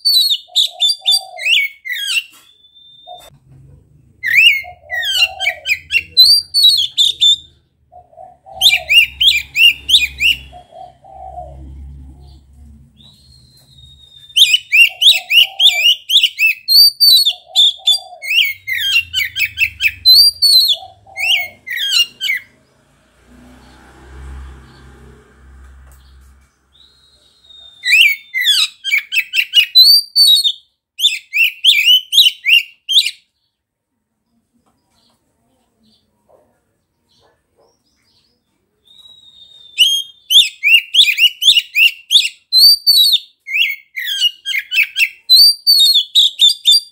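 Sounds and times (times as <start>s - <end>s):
songbird whistling and chattering: 0.0s - 3.4s, 4.2s - 12.4s, 13.0s - 22.5s, 26.7s - 33.2s, 38.8s - 46.9s.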